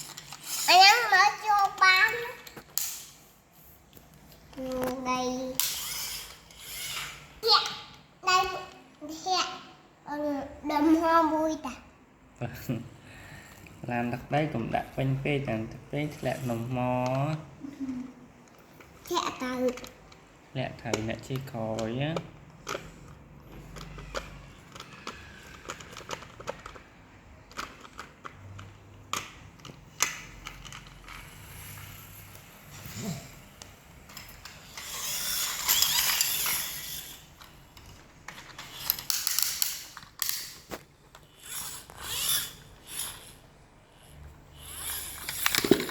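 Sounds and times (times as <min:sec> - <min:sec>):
scraping rattle: 0:00.0 - 0:02.6, 0:04.7 - 0:07.6, 0:34.1 - 0:37.3, 0:44.6 - 0:45.9
plastic toy trucks clicking and rattling: 0:00.0 - 0:03.2, 0:04.2 - 0:09.6, 0:18.5 - 0:45.9.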